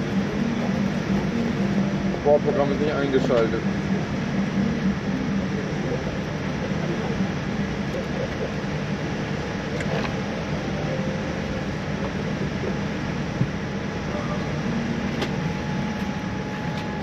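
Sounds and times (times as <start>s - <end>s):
cabin air-conditioning rush: 0.0s - 17.0s.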